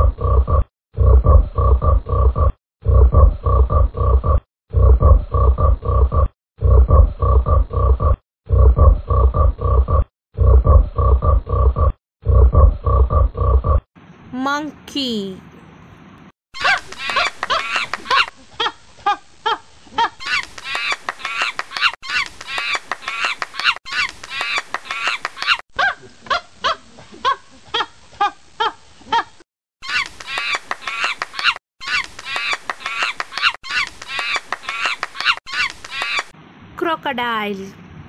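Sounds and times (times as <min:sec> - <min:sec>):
monkeys chattering: 0:16.6 - 0:18.3, 0:29.8 - 0:36.3.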